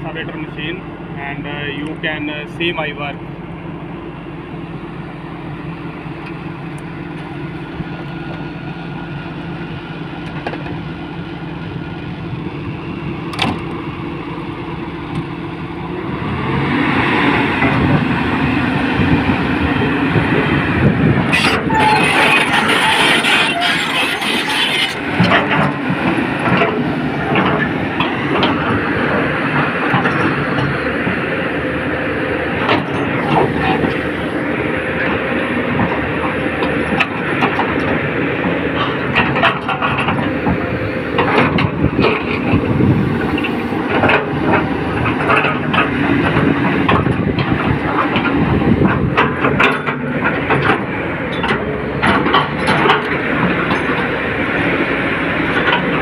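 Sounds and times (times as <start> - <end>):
excavator engine running: 0.0 - 56.0
excavator clanks and knocks: 10.2 - 11.0, 13.2 - 13.9, 17.4 - 31.8, 32.5 - 56.0.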